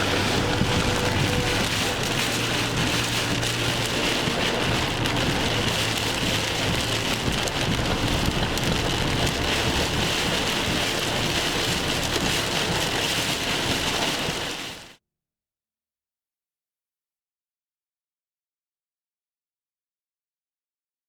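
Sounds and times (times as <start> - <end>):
rain on a hard surface: 0.0 - 15.0.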